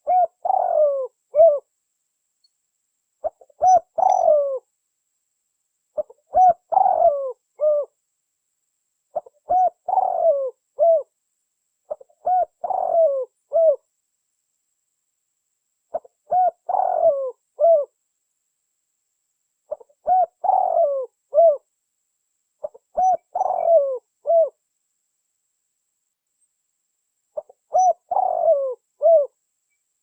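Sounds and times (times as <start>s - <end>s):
dove cooing: 0.0s - 1.7s, 3.2s - 4.7s, 6.0s - 8.0s, 9.1s - 11.1s, 11.9s - 13.8s, 15.9s - 17.9s, 19.7s - 21.7s, 22.6s - 24.6s, 27.4s - 29.4s.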